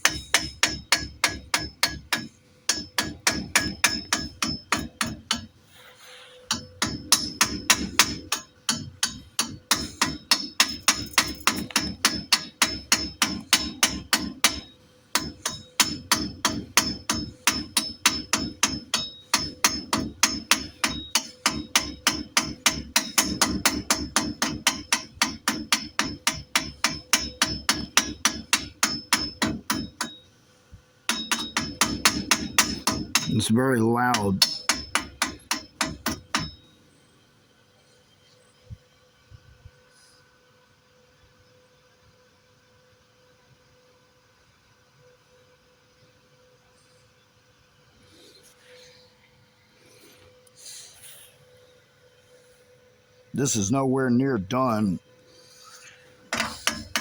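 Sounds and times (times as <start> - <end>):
hammer striking steel: 0.0 - 5.5, 6.5 - 30.2, 31.1 - 36.6, 56.3 - 57.0.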